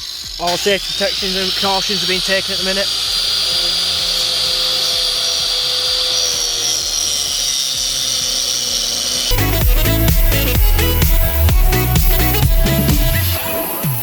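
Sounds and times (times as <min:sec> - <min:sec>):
power tool whining: 0:00.0 - 0:14.0
dance music with a beat: 0:09.3 - 0:14.0.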